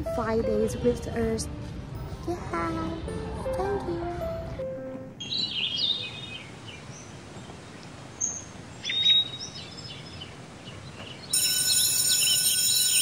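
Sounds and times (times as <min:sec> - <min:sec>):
outdoor background hiss: 0:04.7 - 0:13.0
birds chirping: 0:05.2 - 0:13.0.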